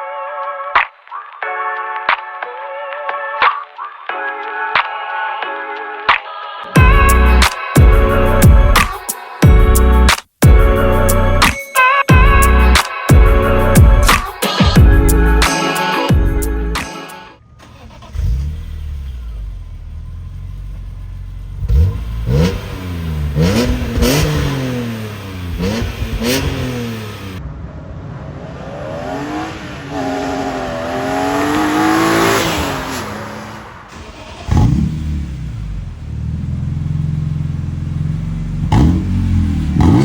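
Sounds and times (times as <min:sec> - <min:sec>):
car engine idling and revving: 0:17.4 - 0:40.0.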